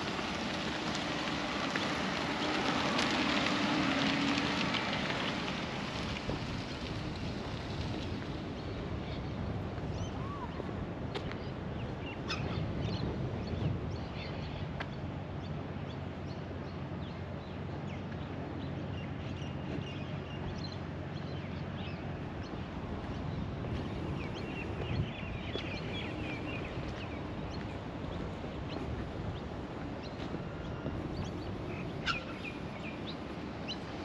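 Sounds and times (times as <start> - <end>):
wind: 0.0 - 34.0
birds chirping: 11.3 - 34.0.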